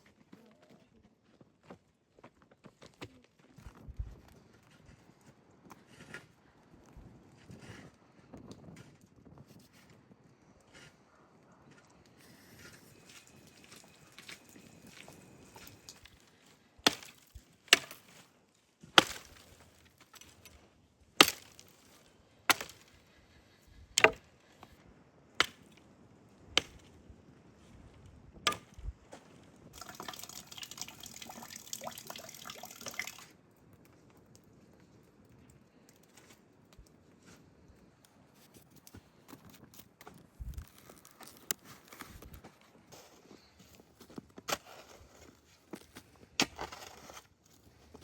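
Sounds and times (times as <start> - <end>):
sharp chopping strikes: 21.2 - 21.6, 22.5 - 22.9, 24.0 - 24.3.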